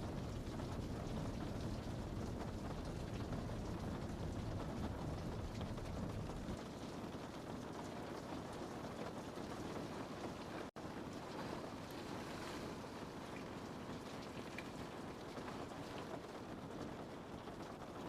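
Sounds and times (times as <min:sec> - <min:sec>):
rain on a window: 0:00.0 - 0:18.0.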